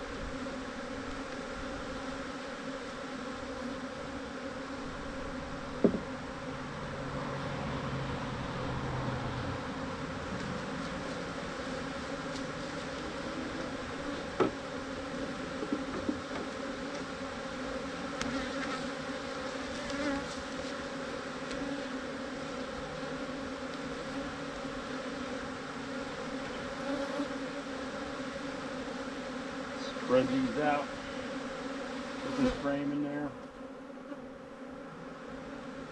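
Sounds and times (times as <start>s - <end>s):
honeybees buzzing: 0.0s - 35.9s
sharp knock: 5.8s - 6.1s.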